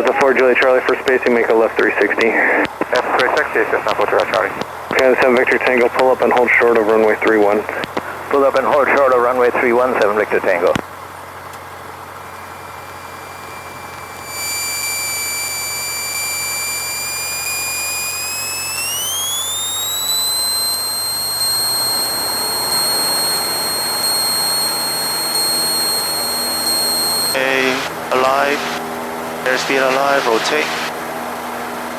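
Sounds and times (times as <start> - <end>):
thin high whine: 12.5 - 31.0.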